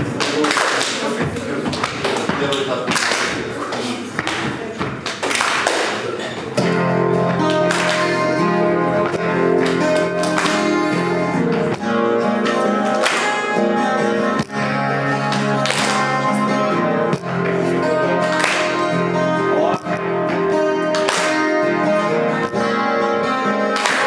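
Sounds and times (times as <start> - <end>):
acoustic guitar chords: 6.1 - 24.0.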